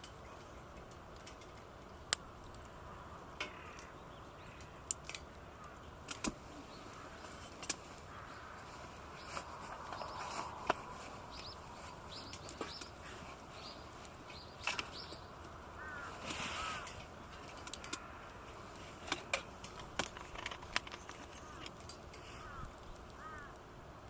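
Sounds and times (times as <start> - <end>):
birds chirping: 2.5 - 23.6
lower arched bird calls: 2.6 - 18.5, 21.3 - 23.6.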